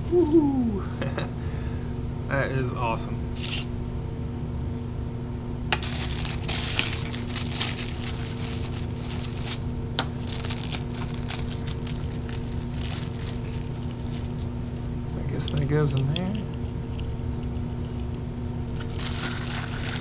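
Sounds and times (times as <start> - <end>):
packing wrap crinkling: 3.4 - 3.8, 5.8 - 15.0, 18.7 - 20.0.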